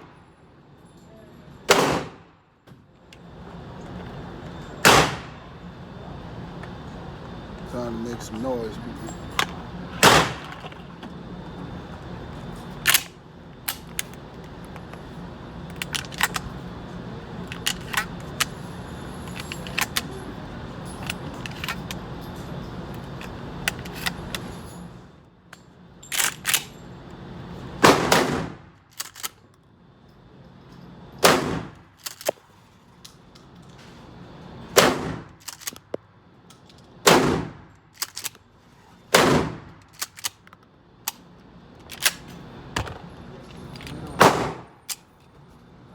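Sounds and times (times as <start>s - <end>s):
loud gunshots: 1.7s - 2.2s, 4.8s - 5.3s, 10.0s - 10.4s, 27.8s - 28.6s, 31.2s - 31.7s, 34.8s - 35.3s, 37.1s - 37.6s, 39.2s - 39.7s, 44.2s - 44.7s.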